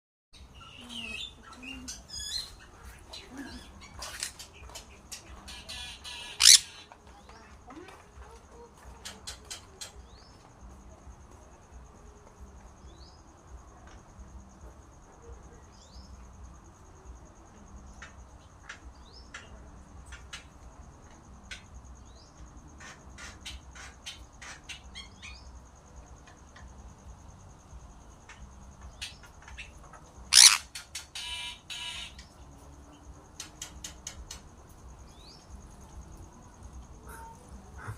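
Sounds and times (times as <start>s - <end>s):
bird chirping: 0.4s - 7.5s, 28.9s - 32.4s
loud sharp bird call: 5.6s - 6.9s, 30.3s - 32.2s
raspy bird call: 5.6s - 6.9s, 30.3s - 32.2s.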